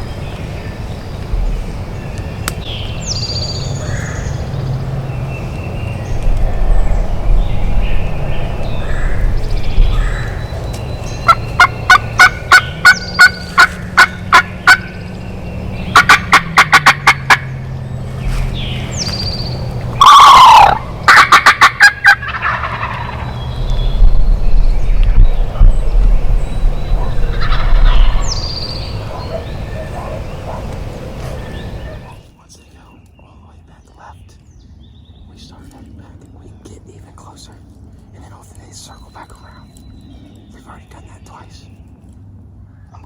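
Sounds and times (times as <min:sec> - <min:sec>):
wild turkey calling: 0:09.9 - 0:15.2, 0:15.8 - 0:17.9, 0:18.6 - 0:23.5, 0:26.9 - 0:32.8
turkey gobble: 0:11.2 - 0:15.0, 0:15.9 - 0:17.5, 0:20.0 - 0:23.3, 0:27.0 - 0:28.3.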